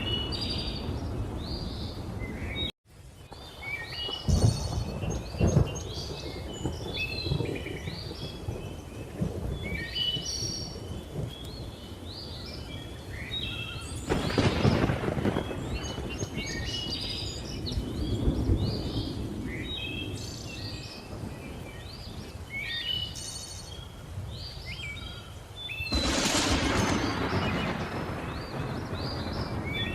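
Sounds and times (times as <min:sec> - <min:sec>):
thunder rumbling: 0:03.3 - 0:12.6, 0:14.0 - 0:22.3, 0:25.9 - 0:29.9
jungle birds calling and chirping: 0:03.3 - 0:29.9.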